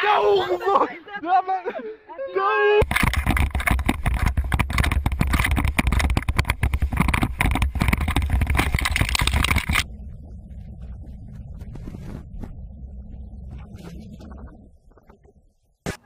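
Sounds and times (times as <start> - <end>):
camera handling noise: 2.8 - 9.9
deep rumble: 2.8 - 15.8
crackling wind rush: 2.8 - 16.0.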